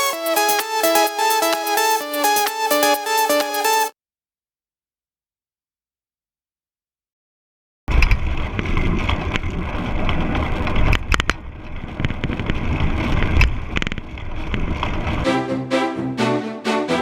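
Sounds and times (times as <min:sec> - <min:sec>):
bicycle road noise: 0:07.9 - 0:15.2.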